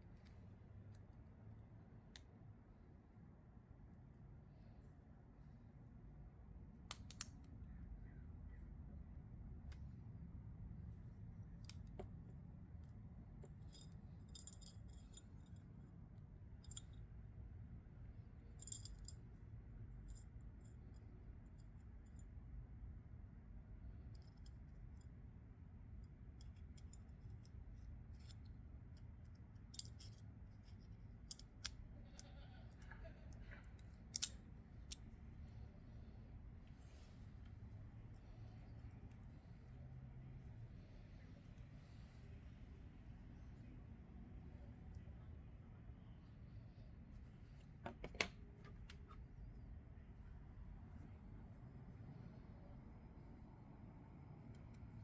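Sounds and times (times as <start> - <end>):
quiet low hum: 0.0 - 55.0
metallic clicks and taps: 34.2 - 34.4.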